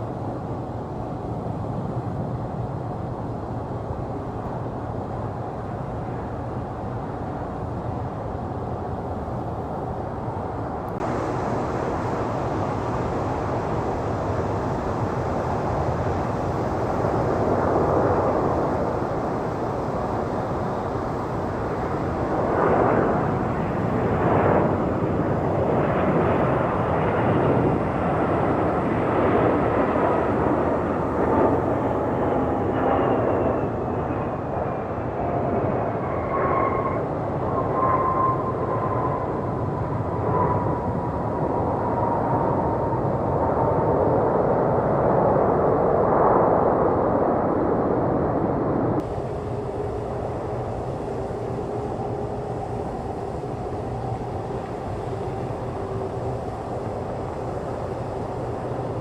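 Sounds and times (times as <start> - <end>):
jet engines rumbling: 0.0 - 59.0
engine whines falling in pitch: 11.0 - 43.4, 48.8 - 59.0.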